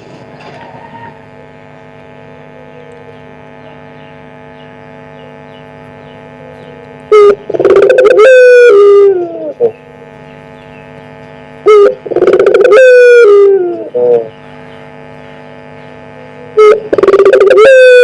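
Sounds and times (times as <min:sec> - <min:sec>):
steady electrical hum: 0:00.0 - 0:18.0
dove cooing: 0:06.2 - 0:09.8, 0:11.6 - 0:14.4, 0:15.6 - 0:18.0.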